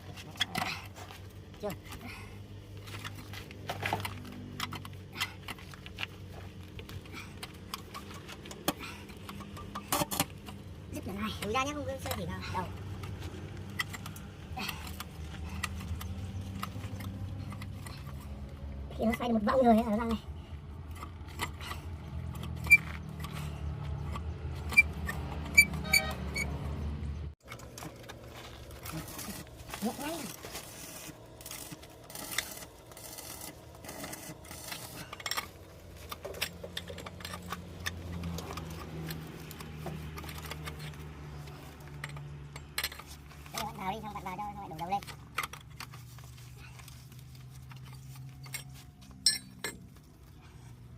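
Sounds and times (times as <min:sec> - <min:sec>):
metal tools clinking: 0:06.8 - 0:20.0, 0:27.4 - 0:50.3.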